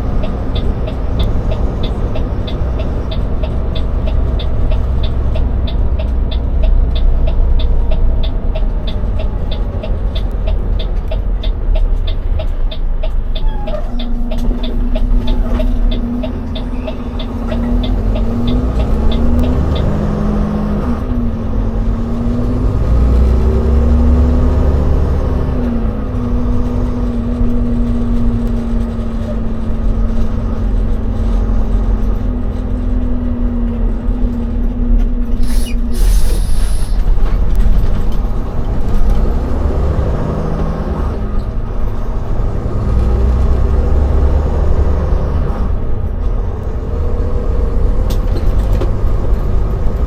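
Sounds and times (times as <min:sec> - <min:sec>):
truck diesel engine running: 0:00.0 - 0:50.0
brief hiss: 0:35.4 - 0:37.1.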